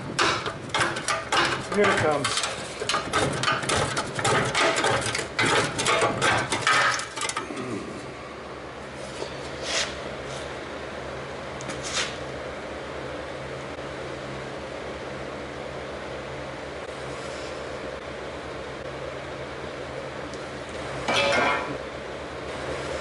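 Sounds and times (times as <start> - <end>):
steady low hum: 0.0 - 23.0
metal parts clattering and scraping: 0.2 - 7.5, 21.1 - 21.8.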